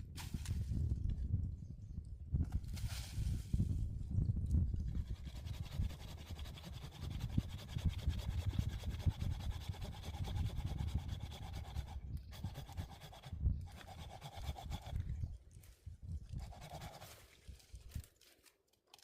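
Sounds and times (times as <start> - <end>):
hand saw cutting wood: 5.0 - 15.0, 16.4 - 17.2.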